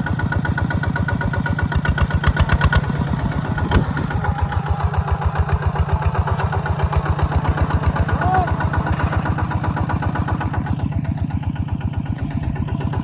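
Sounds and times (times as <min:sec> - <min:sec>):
farm machine engine idling: 0:00.0 - 0:13.0
sharp knock: 0:03.6 - 0:04.2.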